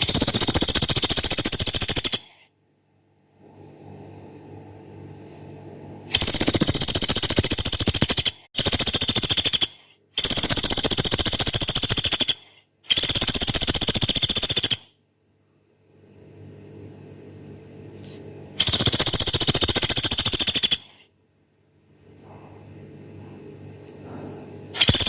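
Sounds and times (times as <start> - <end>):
woodpecker rattling trills: 0.0 - 2.4, 6.1 - 14.9, 18.6 - 21.0, 24.8 - 25.0.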